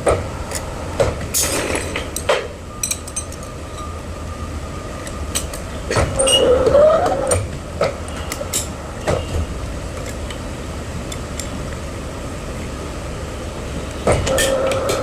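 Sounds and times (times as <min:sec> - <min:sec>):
construction machine rumbling: 0:00.0 - 0:15.0
machine squeal: 0:02.6 - 0:07.5, 0:14.2 - 0:15.0.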